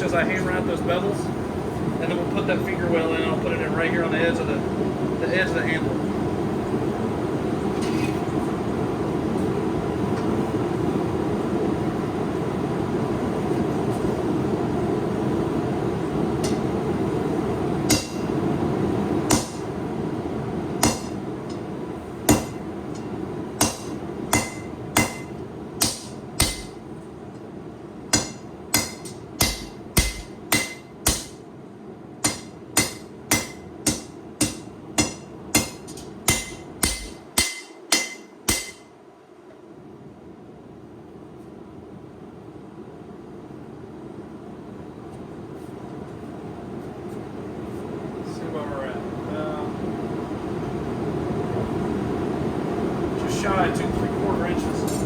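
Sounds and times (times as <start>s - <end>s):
steady rushing roar: 0.0s - 38.9s, 46.3s - 55.0s
hammer blows on anvil: 17.9s - 18.4s, 19.3s - 19.7s, 20.8s - 21.6s, 22.3s - 26.8s, 28.2s - 31.4s, 32.2s - 38.9s.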